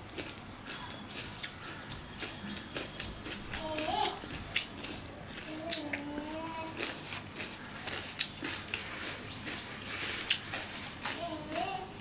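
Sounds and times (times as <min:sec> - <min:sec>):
person chewing crunchy food: 0:00.0 - 0:12.0.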